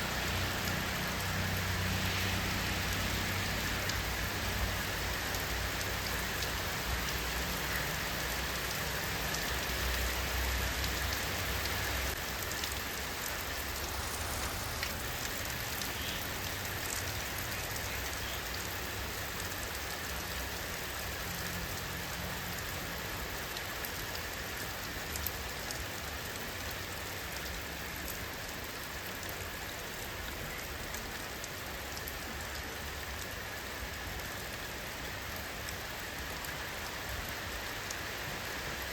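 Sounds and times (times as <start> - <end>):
raindrops pattering: 0.0 - 38.9
steady rain hiss: 0.0 - 38.9.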